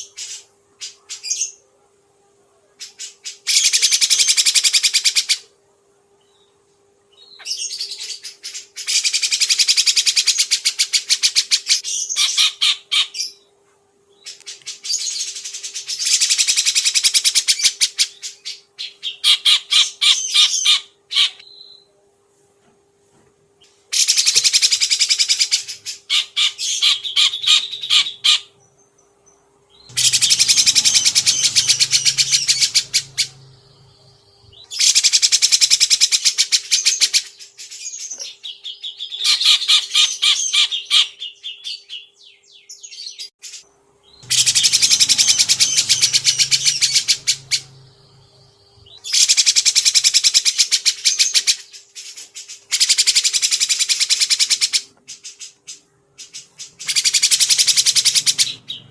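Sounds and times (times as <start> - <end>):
faint steady hum: 0.0 - 58.9
songbird harsh chattering song: 14.2 - 21.8, 24.0 - 29.1, 29.7 - 43.1, 44.0 - 58.9.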